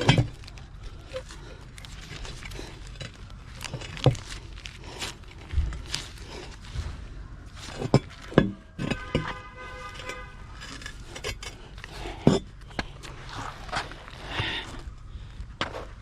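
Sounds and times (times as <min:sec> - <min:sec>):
metal tools clanking: 0:00.0 - 0:01.3, 0:07.6 - 0:13.0.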